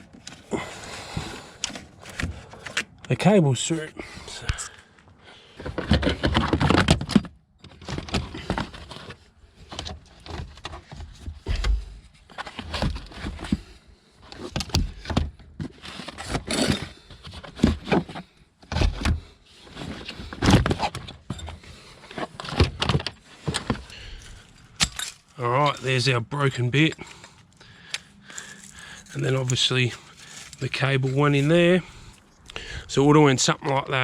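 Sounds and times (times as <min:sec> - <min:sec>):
cables and metal fittings rattling: 0:19.6 - 0:32.4.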